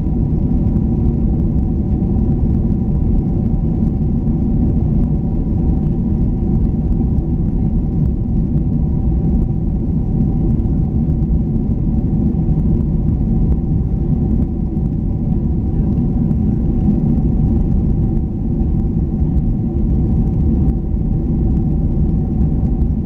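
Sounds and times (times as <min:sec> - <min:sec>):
jet engine and airflow rumble: 0:00.0 - 0:23.0.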